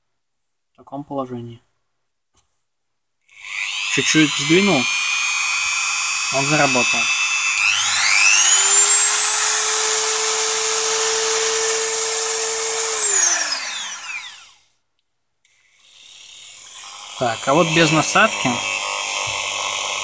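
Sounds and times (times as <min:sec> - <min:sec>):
rotary tool motor whining: 0:03.3 - 0:14.7, 0:15.7 - 0:20.0.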